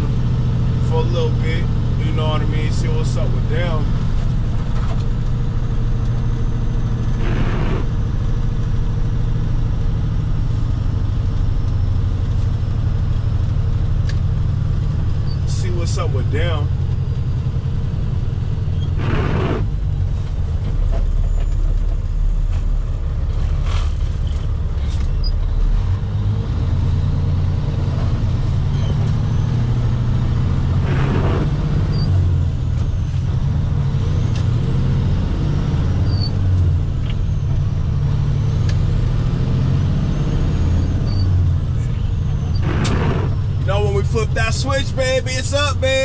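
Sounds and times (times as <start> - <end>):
truck engine and road drone: 0.0 - 46.0.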